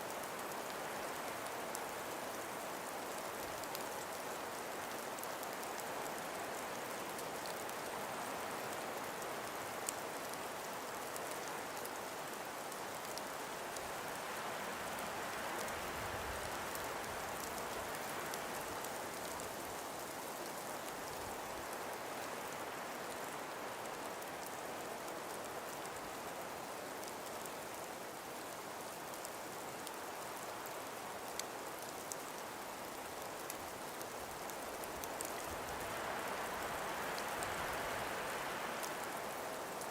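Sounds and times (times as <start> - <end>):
breeze through trees: 0.0 - 39.9
faint ticks: 0.1 - 14.0, 24.0 - 39.9.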